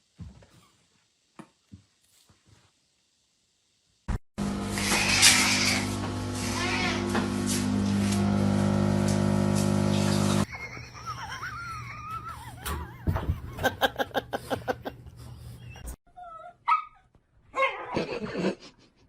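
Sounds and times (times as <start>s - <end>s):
dog yelping: 16.2s - 18.0s
dog yipping: 16.2s - 18.0s.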